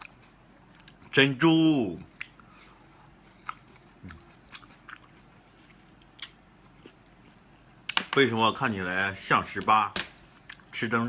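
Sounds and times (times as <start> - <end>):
wet chewing mouth clicks: 3.3 - 5.3.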